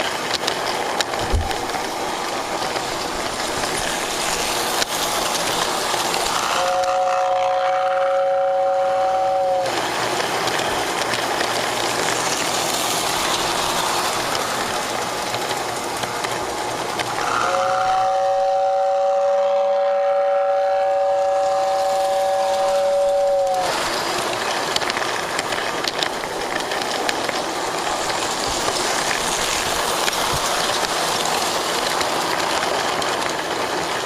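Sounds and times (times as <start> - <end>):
model train running on track: 0.0 - 34.0
model train horn: 6.4 - 9.8, 17.2 - 23.8.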